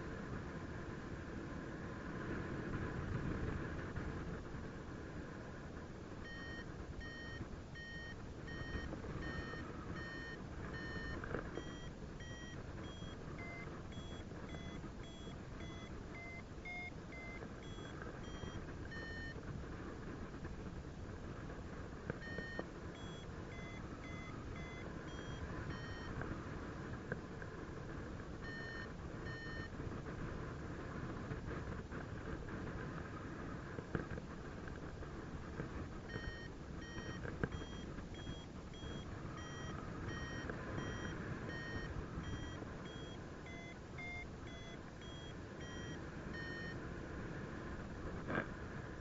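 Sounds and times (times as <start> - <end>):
variometer beeping: 6.2 - 19.4, 22.2 - 26.2, 28.4 - 29.8, 36.1 - 46.8.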